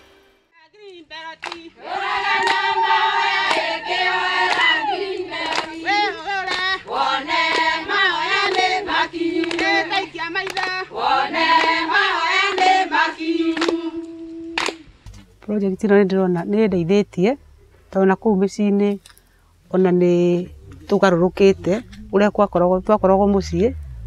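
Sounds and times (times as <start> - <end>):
group of voices singing: 0.8 - 14.9
hand claps: 1.4 - 1.7, 2.4 - 2.7, 3.4 - 3.7, 4.4 - 4.7, 5.4 - 6.8, 7.4 - 8.8, 9.4 - 10.8, 11.5 - 11.8, 12.5 - 12.8, 13.5 - 15.3.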